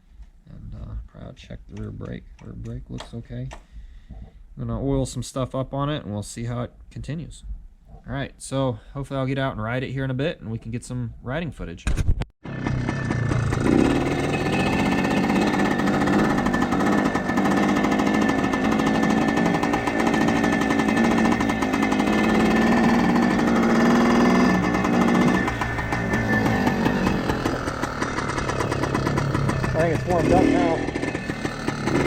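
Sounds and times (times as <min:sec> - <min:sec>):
two-stroke engine running: 0:12.4 - 0:32.0.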